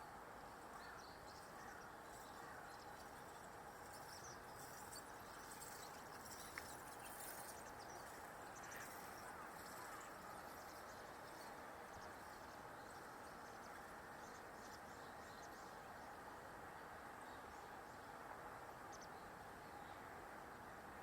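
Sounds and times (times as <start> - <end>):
steady low hiss: 0.0 - 21.0.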